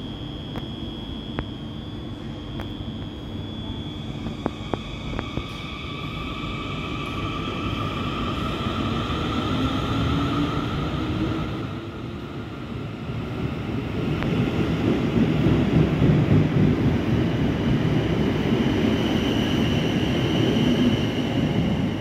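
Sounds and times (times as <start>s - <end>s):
thin high whine: 0.0s - 13.6s.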